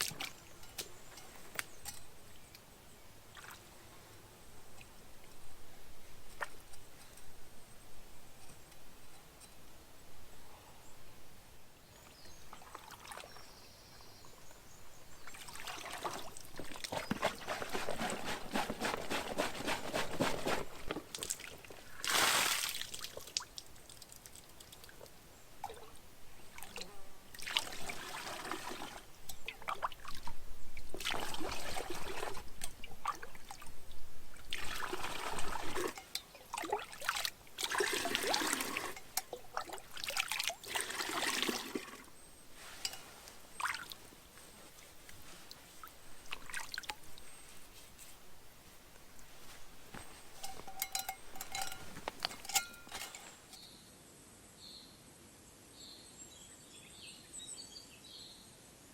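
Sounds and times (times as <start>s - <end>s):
water pouring and trickling: 12.3s - 13.6s, 15.2s - 53.5s
water splash: 15.4s - 23.6s.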